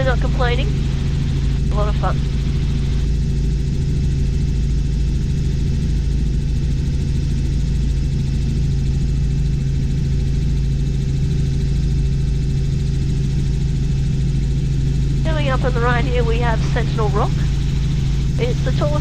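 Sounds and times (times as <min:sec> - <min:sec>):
helicopter cabin drone: 0:00.0 - 0:19.0.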